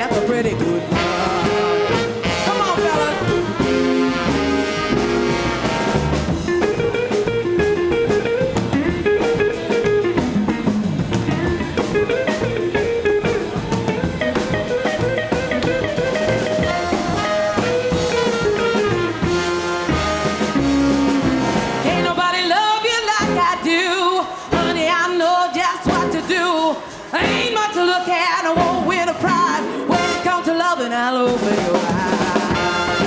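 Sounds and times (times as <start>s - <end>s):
electric guitar solo: 0.0s - 22.2s
bass guitar: 0.0s - 30.7s, 31.3s - 33.0s
drum kit: 0.0s - 33.0s.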